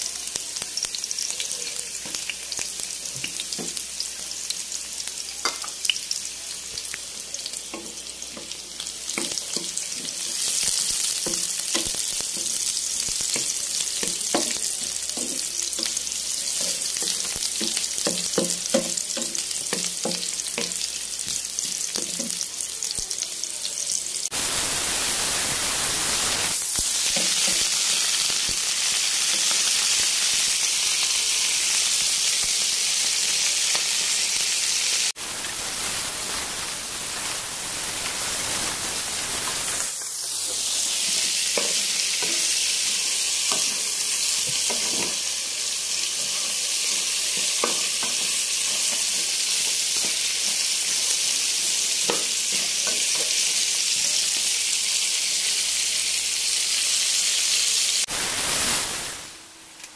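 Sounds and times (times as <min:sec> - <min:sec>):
food sizzling in hot oil: 0:00.0 - 0:59.9.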